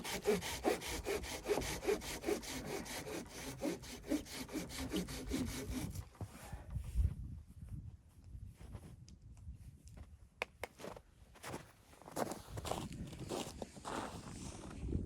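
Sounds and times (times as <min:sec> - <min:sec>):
hand saw cutting wood: 0:00.0 - 0:06.0.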